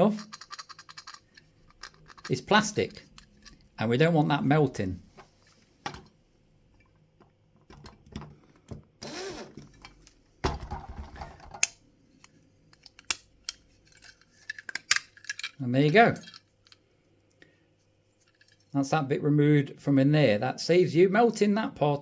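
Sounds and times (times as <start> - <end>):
plastic part scraping and rattling: 0.0 - 3.6.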